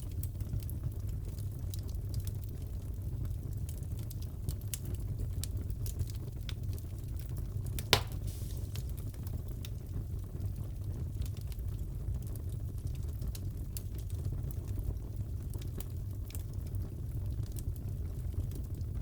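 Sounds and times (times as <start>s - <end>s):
wood fire crackling: 0.0s - 19.0s
loud fire pop: 7.8s - 9.1s.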